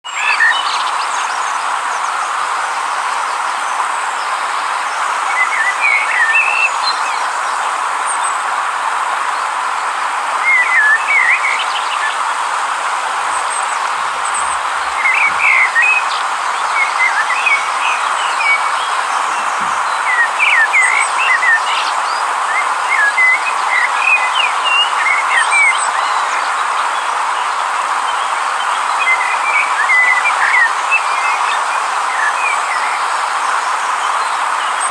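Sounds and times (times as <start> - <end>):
small birds chirping: 0.0 - 34.9
river water rushing: 0.1 - 34.9.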